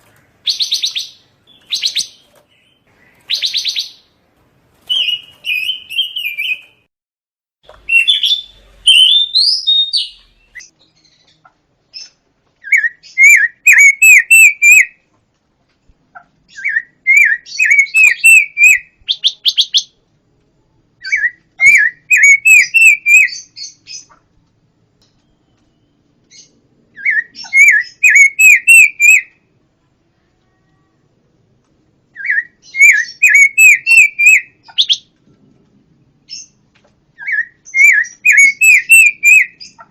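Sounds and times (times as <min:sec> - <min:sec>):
bird chirps: 0:00.0 - 0:04.1, 0:04.8 - 0:06.9, 0:07.7 - 0:15.0, 0:21.0 - 0:24.2, 0:25.0 - 0:29.4, 0:32.2 - 0:35.1, 0:37.2 - 0:39.9
bird singing whistled notes: 0:04.9 - 0:06.8, 0:07.8 - 0:11.2, 0:12.6 - 0:15.0, 0:16.5 - 0:19.9, 0:21.0 - 0:24.1, 0:25.2 - 0:29.3, 0:32.2 - 0:35.1, 0:37.2 - 0:39.8.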